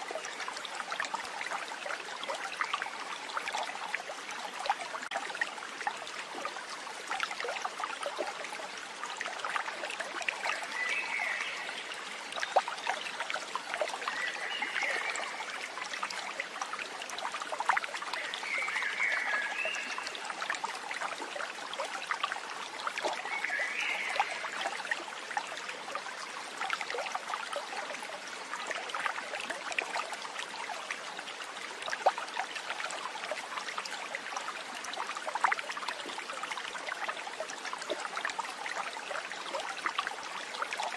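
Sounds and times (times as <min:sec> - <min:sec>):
stream babbling: 0:00.0 - 0:40.9.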